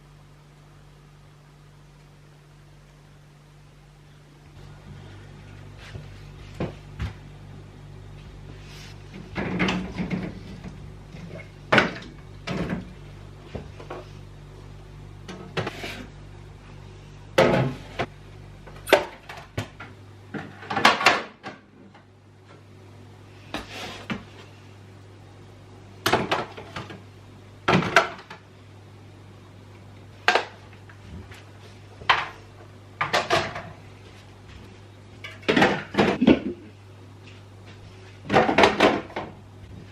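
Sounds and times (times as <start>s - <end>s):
fridge hum: 0.0s - 39.9s
containers knocking and clattering: 9.2s - 13.0s, 33.0s - 33.8s, 35.2s - 36.7s, 38.2s - 39.4s.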